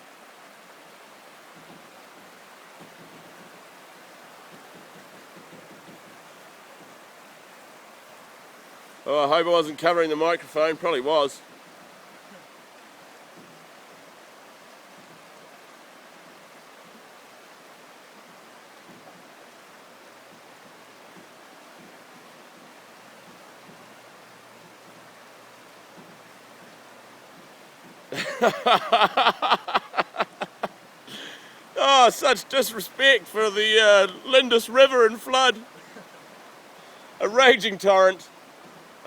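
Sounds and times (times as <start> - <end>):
river rushing in flood: 0.0 - 39.0
loud voice: 31.8 - 35.6, 37.2 - 38.2.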